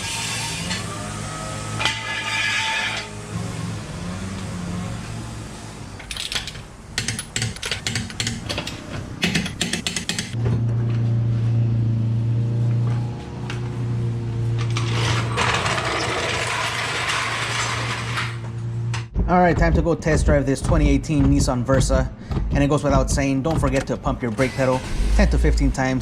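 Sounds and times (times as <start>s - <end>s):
steady low hum: 18.6s - 26.0s
hissing rush: 24.4s - 26.0s.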